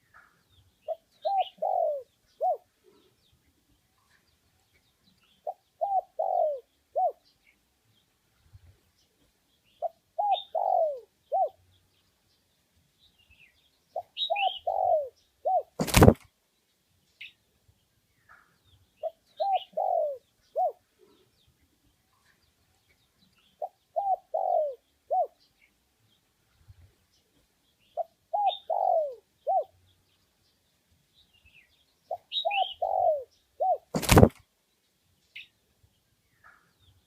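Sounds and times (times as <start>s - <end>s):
dove cooing: 0.8s - 2.7s, 5.4s - 7.3s, 9.8s - 11.6s, 13.9s - 16.2s, 19.0s - 21.2s, 23.6s - 25.4s, 28.0s - 29.8s, 32.1s - 34.3s.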